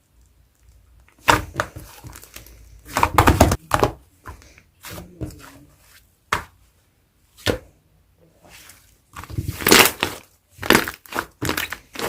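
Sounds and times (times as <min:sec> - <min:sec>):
slime popping and squishing: 0:09.2 - 0:12.0.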